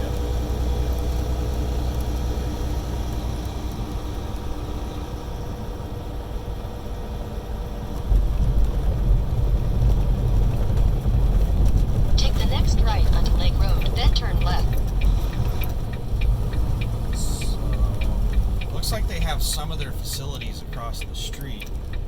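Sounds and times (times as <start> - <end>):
diesel truck engine rumbling: 0.0 - 22.0.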